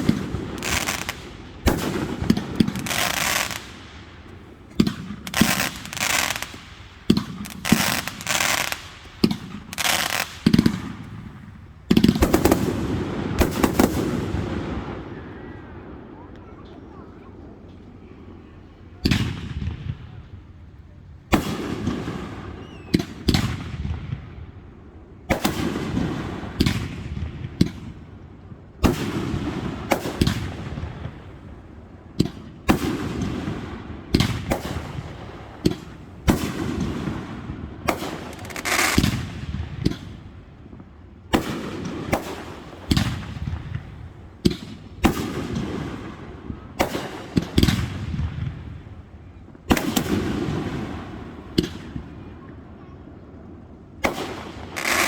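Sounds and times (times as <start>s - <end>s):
fireworks bursting with bangs: 0.0s - 17.3s, 18.4s - 24.5s, 25.3s - 55.0s
rolling echo and crackle: 0.0s - 55.0s.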